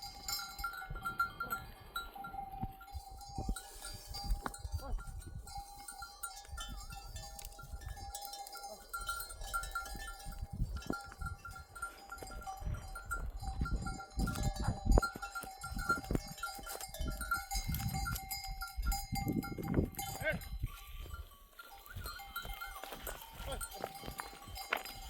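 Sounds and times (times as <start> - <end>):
hooves scuffing: 0.0 - 25.0
livestock bells ringing: 0.0 - 25.0
sheep and goats bleating: 19.9 - 25.0.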